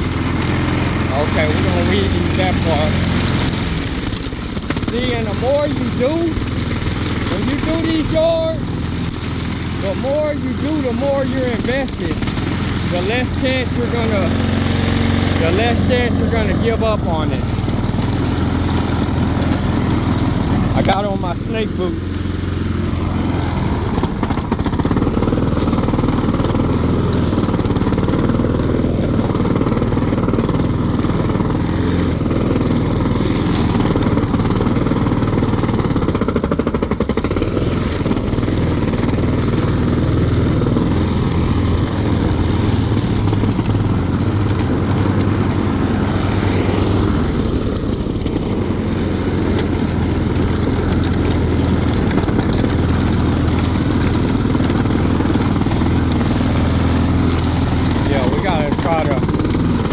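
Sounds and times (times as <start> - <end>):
lawn mower engine cutting grass: 0.0 - 59.9.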